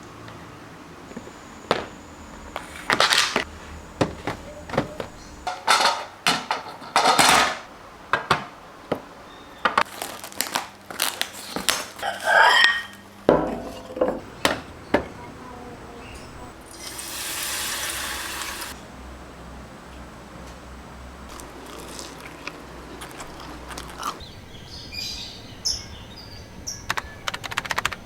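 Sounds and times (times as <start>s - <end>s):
dishes and utensils clinking: 4.7s - 7.6s, 12.0s - 15.2s.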